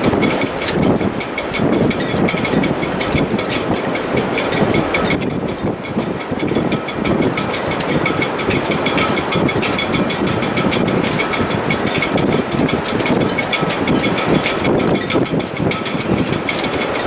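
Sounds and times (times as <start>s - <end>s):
rigging clicking and rattling: 0.0s - 17.0s
wind: 0.0s - 17.0s.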